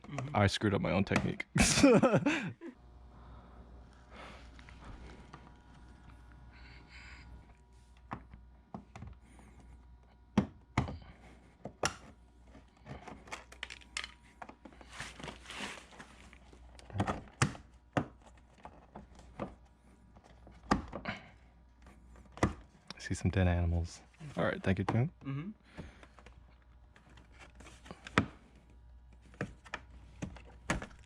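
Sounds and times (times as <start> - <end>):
film rustling: 12.1 - 20.8
plastic parts clicking: 12.9 - 14.6.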